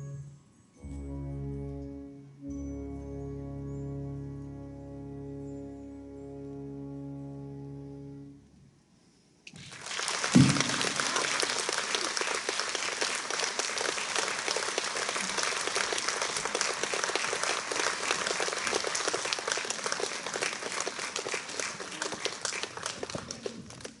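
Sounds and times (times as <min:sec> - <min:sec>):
audience applause: 0:09.5 - 0:24.0
low thump: 0:10.4 - 0:10.8.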